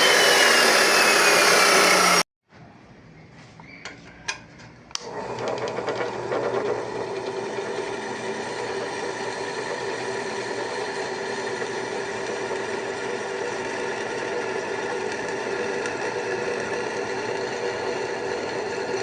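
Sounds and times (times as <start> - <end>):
machine hum: 0.0 - 2.2.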